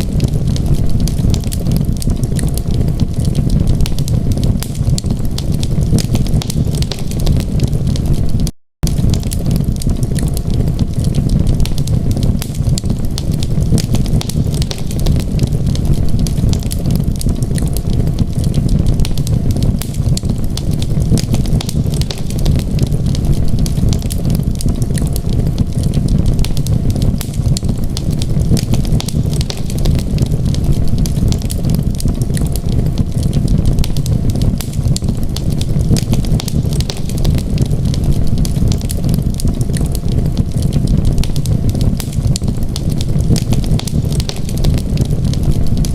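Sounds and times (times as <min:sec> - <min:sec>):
wood fire crackling and popping: 0:00.0 - 0:45.9.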